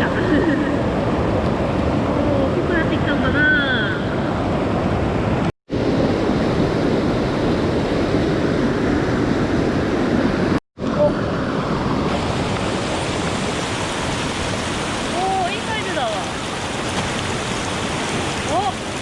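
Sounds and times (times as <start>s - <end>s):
stream water rushing: 11.1s - 19.0s.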